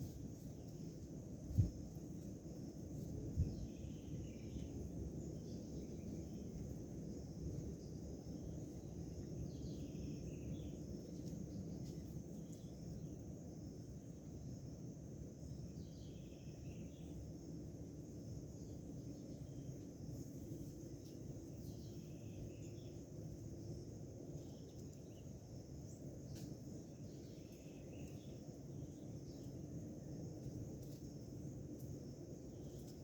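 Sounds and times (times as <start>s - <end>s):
low rumbling background noise: 0.0s - 33.0s.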